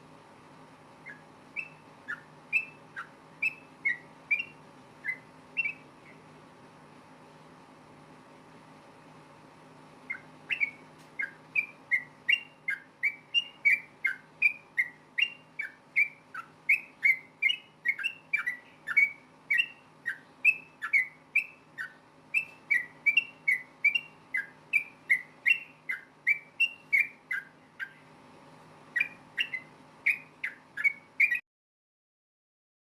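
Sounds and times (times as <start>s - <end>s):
bulbul whistled calls: 1.0s - 6.3s, 10.0s - 28.1s, 28.9s - 31.4s.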